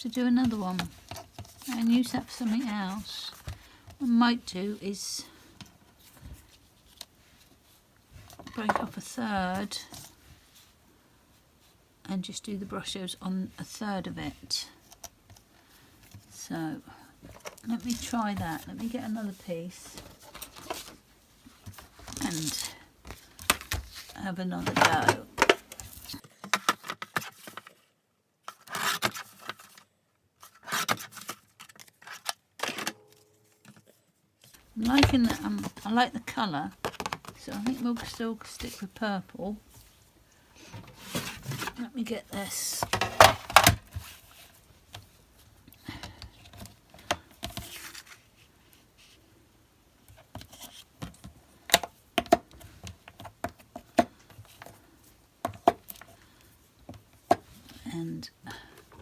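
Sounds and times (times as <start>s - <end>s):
card stock rustling and scraping: 0.3s - 3.8s, 17.2s - 27.8s, 33.7s - 39.1s, 40.6s - 45.0s, 46.4s - 49.2s.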